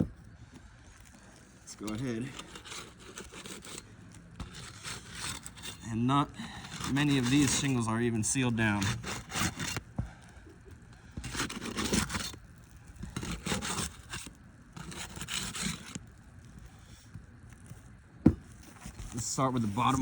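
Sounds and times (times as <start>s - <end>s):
steel bar scraping roof shingles: 1.2s - 7.9s, 8.7s - 9.9s, 11.2s - 16.0s.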